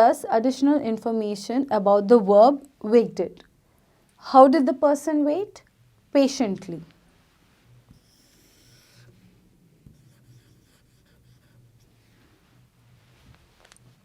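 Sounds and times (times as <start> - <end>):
faint low hum: 0.0 - 14.0
faint scratching: 7.1 - 14.0.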